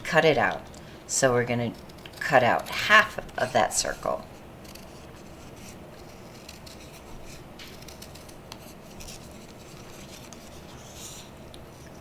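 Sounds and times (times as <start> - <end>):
scissors snipping paper: 1.7 - 5.0, 6.0 - 10.5
paper rustling: 4.6 - 12.0.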